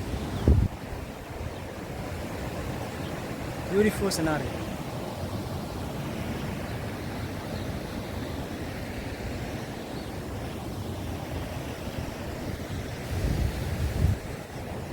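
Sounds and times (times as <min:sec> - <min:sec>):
wind buffeting microphone: 0:00.0 - 0:03.7, 0:11.8 - 0:14.9.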